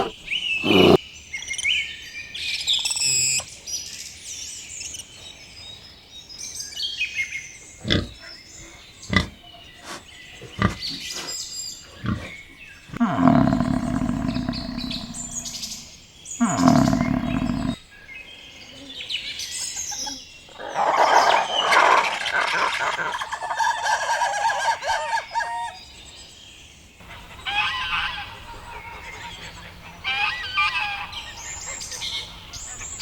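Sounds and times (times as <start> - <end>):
big cat roaring: 0.0 - 1.0, 7.8 - 8.2, 12.0 - 17.8
chicken calls: 0.0 - 1.0, 12.9 - 17.8, 20.6 - 25.8
birds chirping: 0.0 - 1.9, 7.1 - 18.8, 19.4 - 26.1.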